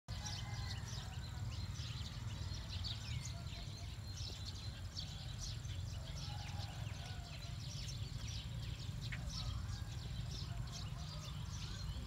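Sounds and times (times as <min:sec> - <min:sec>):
small birds chirping: 0:00.1 - 0:12.0
steady low rumble: 0:00.9 - 0:12.0.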